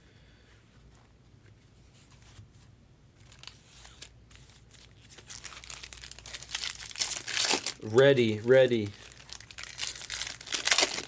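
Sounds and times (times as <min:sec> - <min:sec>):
foil wrappers tearing and crinkling: 0:03.2 - 0:11.0.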